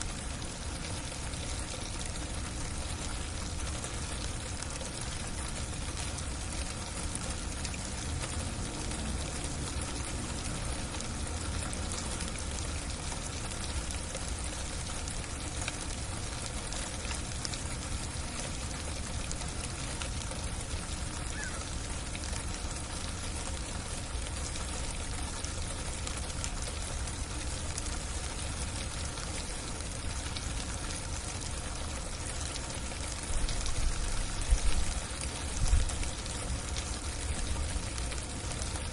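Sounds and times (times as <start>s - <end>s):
heavy freezing rain hiss: 20.8s - 22.3s.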